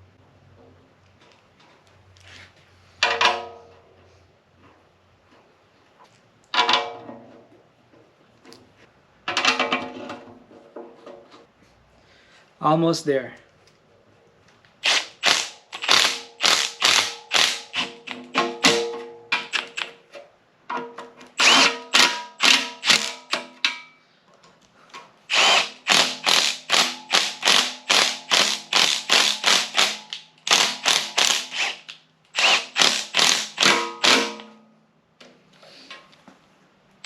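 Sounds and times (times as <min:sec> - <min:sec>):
hand ratchet clicking: 0:14.8 - 0:18.2, 0:25.3 - 0:34.2.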